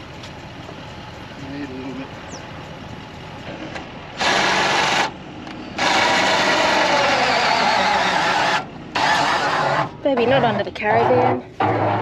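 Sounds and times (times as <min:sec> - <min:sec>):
small electric motor whirring: 0:05.8 - 0:10.0.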